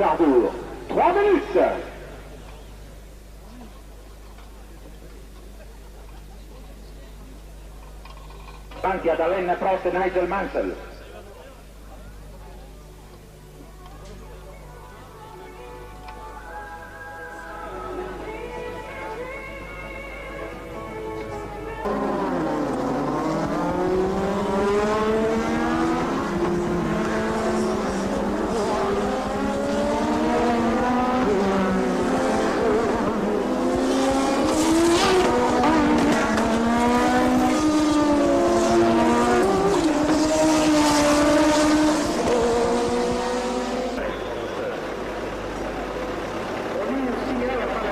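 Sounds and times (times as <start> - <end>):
racing car engines revving: 0.0 - 3.1, 21.2 - 47.9.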